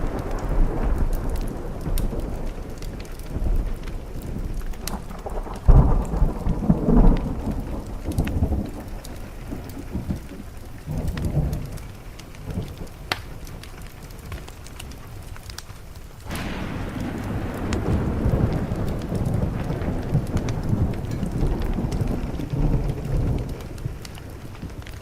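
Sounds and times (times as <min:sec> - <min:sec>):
rolling thunder: 0:00.0 - 0:14.3, 0:16.2 - 0:25.0
steady rain: 0:00.0 - 0:25.0
wood fire crackling: 0:00.0 - 0:25.0.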